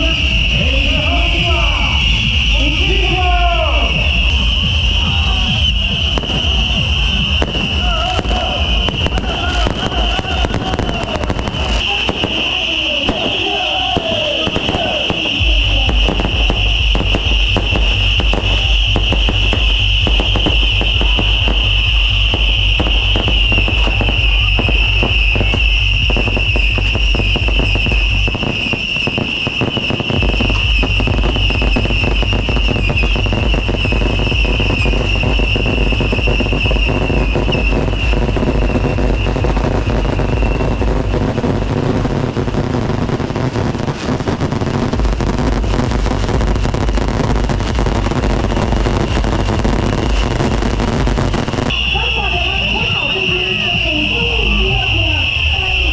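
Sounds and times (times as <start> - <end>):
fireworks crackling: 0.0 - 55.9
high whine dropping in pitch: 15.2 - 53.6.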